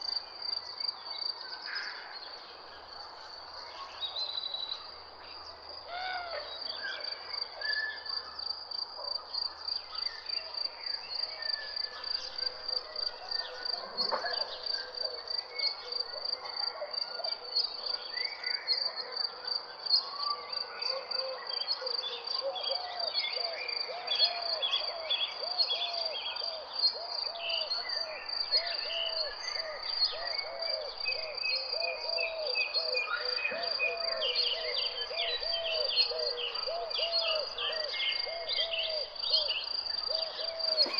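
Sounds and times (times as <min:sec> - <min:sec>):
birds chirping: 0:33.0 - 0:40.9.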